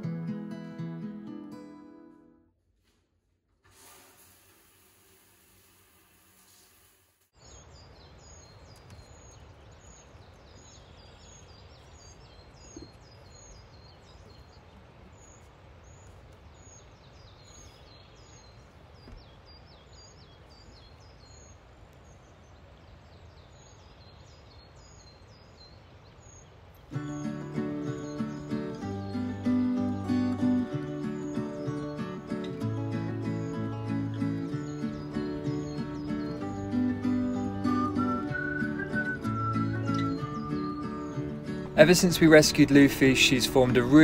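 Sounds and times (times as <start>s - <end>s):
faint hiss: 3.5s - 8.0s
bird chirping: 7.4s - 44.0s.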